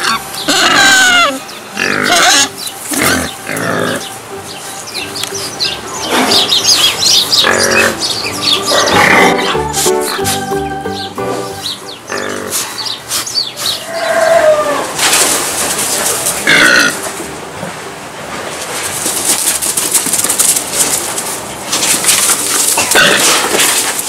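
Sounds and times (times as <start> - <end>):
farm animal cries: 0.0 - 15.0
steady noisy background: 0.0 - 24.0.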